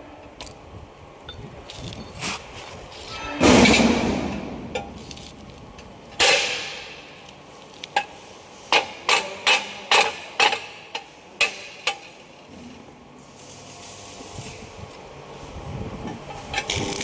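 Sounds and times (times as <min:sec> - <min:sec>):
hammer striking metal: 0:06.2 - 0:07.1.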